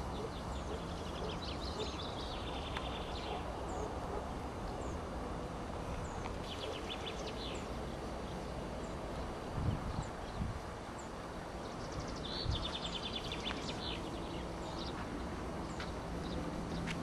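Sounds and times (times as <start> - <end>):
songbirds chirping: 0.0 - 17.0.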